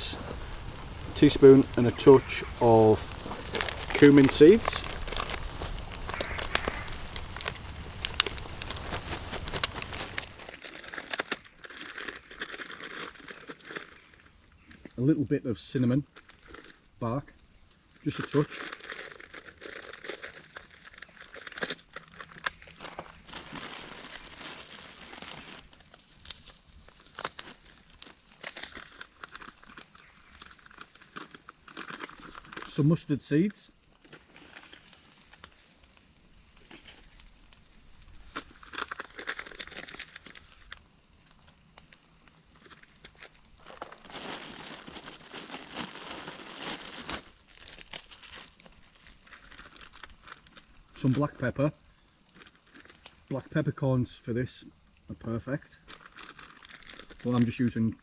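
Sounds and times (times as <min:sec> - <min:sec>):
onions sizzling in hot oil: 0:00.0 - 0:08.8
sharp pops: 0:00.0 - 0:10.5.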